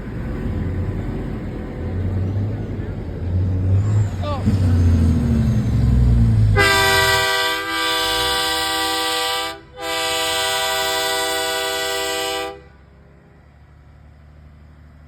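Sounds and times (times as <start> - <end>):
truck air horn blasts: 6.5 - 12.8.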